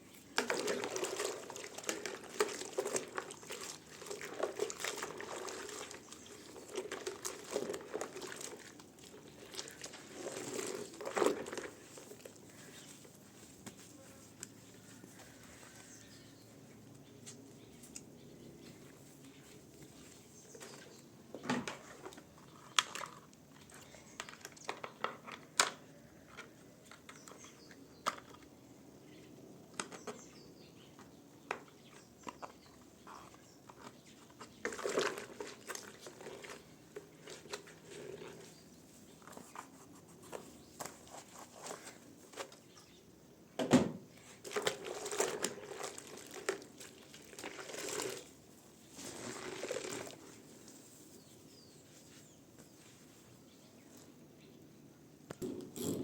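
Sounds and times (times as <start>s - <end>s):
crinkly rustling: 0.0s - 16.2s, 44.2s - 53.5s.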